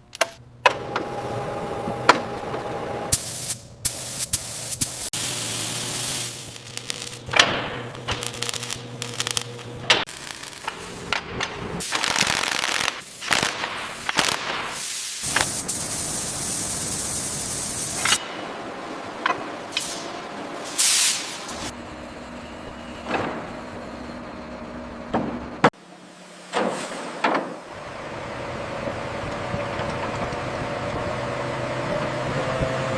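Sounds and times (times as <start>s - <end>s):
machinery clanks and knocks: 22.6s - 25.7s.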